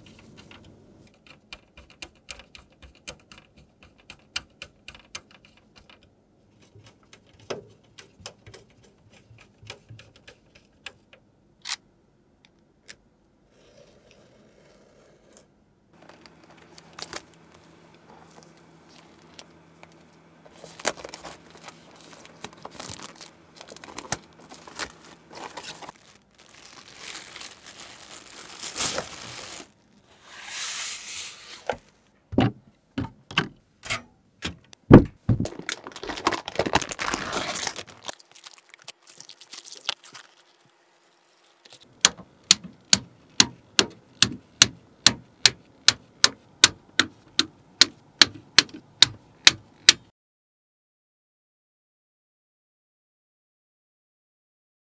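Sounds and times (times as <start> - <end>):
packaging crinkling and tearing: 16.0 - 19.5, 20.5 - 30.0, 35.3 - 41.9.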